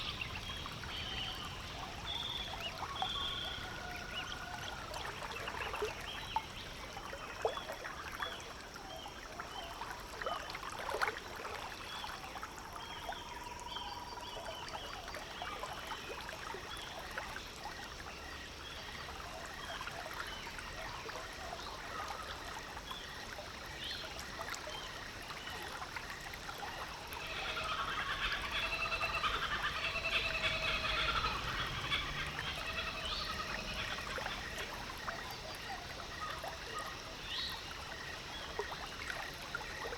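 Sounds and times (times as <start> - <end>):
wildlife chirps: 0.0 - 8.4, 26.3 - 39.0.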